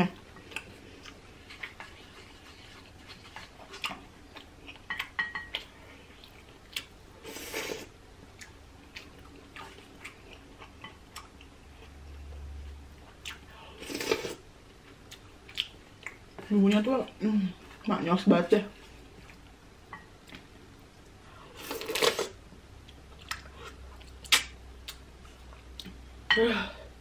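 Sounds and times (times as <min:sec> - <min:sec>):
person chewing: 0:00.4 - 0:16.2, 0:21.5 - 0:26.0.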